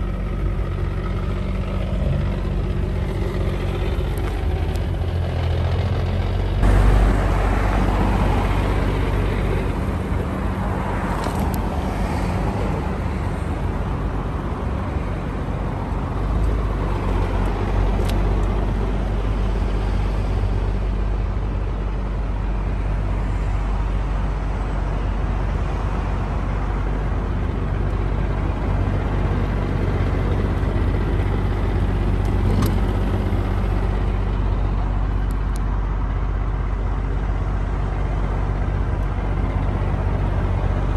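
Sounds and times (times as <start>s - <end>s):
car engine idling: 0.0s - 23.2s, 26.8s - 40.9s.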